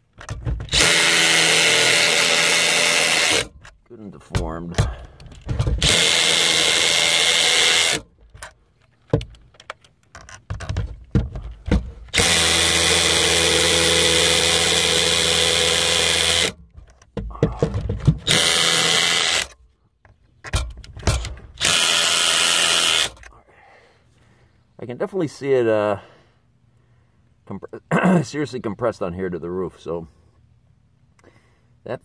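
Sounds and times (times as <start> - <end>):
handling clicks and knocks: 0.0 - 0.8, 3.5 - 6.0, 8.2 - 12.2, 16.6 - 18.4, 19.5 - 21.6
power drill running: 0.7 - 3.6, 5.8 - 8.1, 12.1 - 16.6, 18.2 - 19.6, 21.6 - 23.2.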